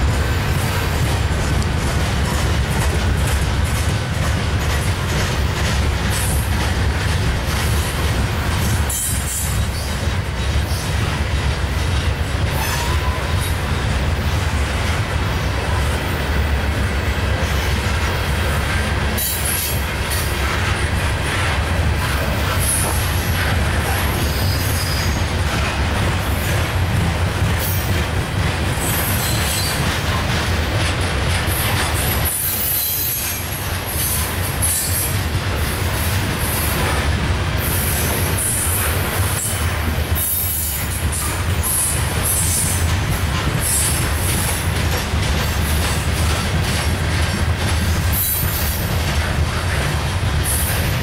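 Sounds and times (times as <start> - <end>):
freight train wheels rumbling: 0.0 - 51.0.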